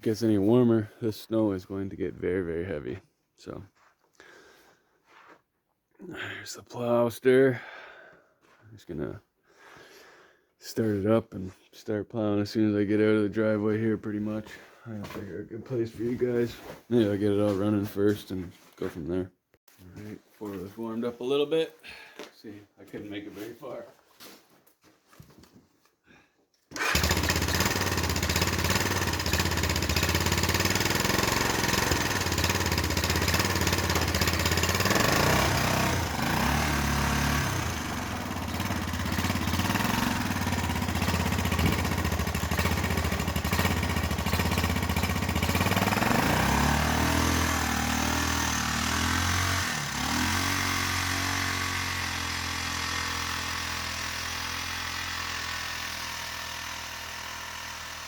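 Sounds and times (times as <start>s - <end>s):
atv engine running: 26.7s - 58.0s.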